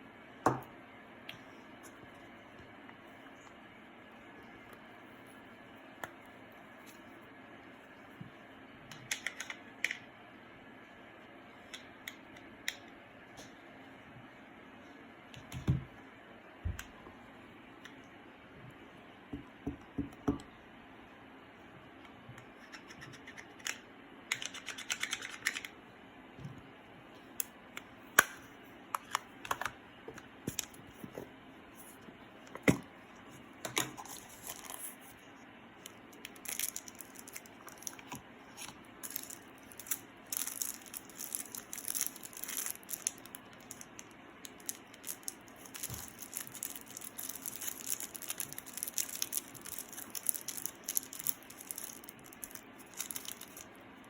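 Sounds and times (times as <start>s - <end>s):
slime crackling and rustling: 34.0s - 53.8s.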